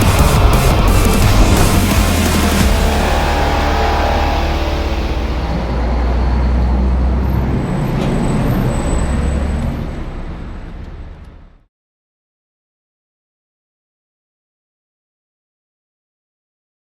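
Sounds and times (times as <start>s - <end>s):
vehicle engine rumbling: 0.0s - 11.6s.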